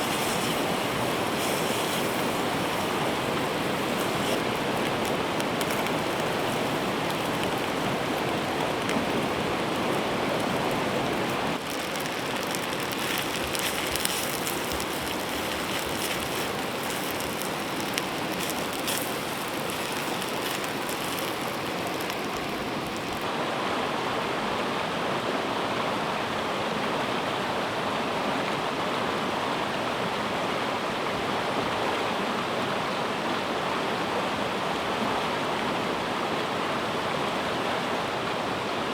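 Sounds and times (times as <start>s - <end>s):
light ticks: 0.0s - 23.2s
river water rushing: 0.0s - 38.9s.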